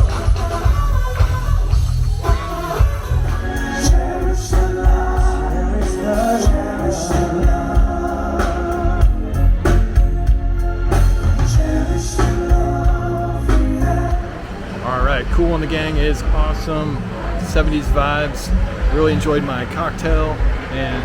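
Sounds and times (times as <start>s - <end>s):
live funk band playing: 0.0s - 14.4s
person singing: 2.2s - 14.6s.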